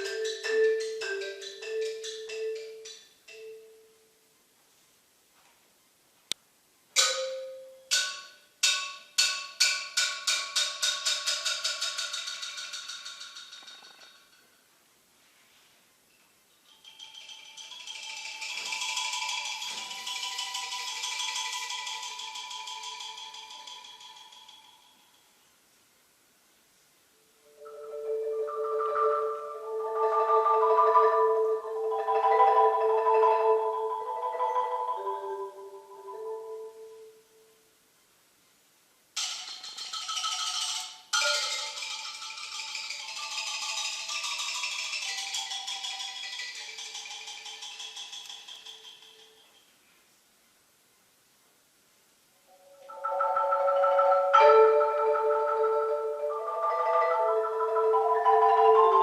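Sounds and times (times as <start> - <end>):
marimba strokes on high notes: 0.0 - 4.2, 7.0 - 12.7, 16.8 - 25.3, 27.4 - 37.5, 39.2 - 49.7, 52.5 - 59.0.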